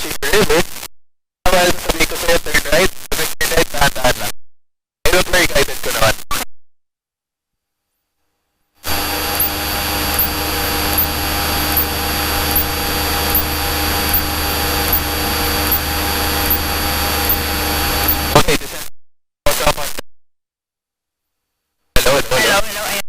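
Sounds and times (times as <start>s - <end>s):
airplane engine and propeller drone: 8.9s - 18.3s.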